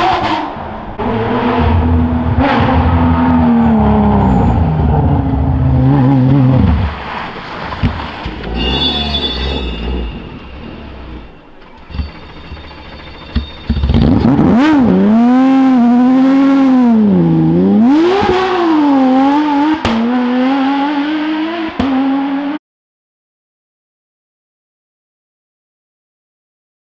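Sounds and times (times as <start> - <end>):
rally car engine revving: 0.0 - 22.6
sharp exhaust cracks: 11.6 - 15.7.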